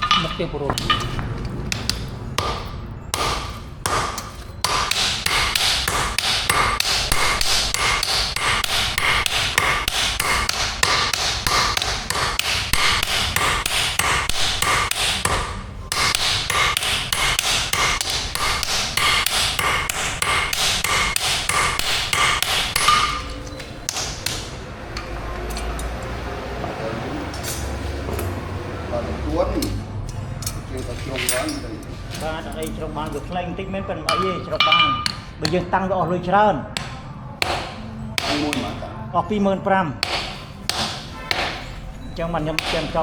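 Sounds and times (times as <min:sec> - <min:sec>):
hammer ringing on anvil: 0:00.0 - 0:24.4, 0:34.1 - 0:35.3, 0:40.0 - 0:43.0.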